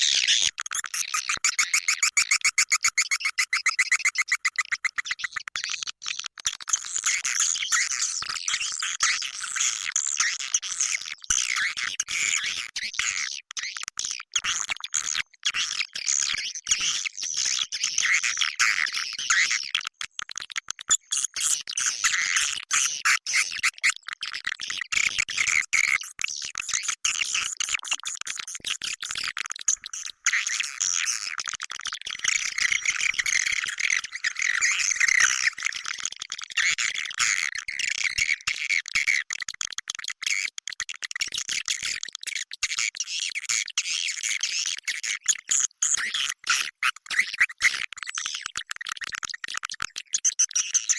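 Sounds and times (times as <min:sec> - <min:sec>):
swiftlets twittering and chirping: 0:32.0 - 0:38.3.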